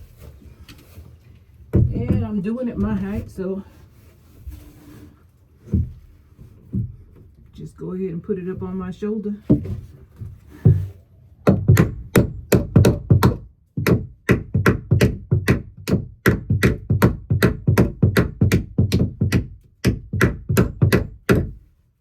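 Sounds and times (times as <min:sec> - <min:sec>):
hammer driving nails into wood: 0:11.4 - 0:21.6.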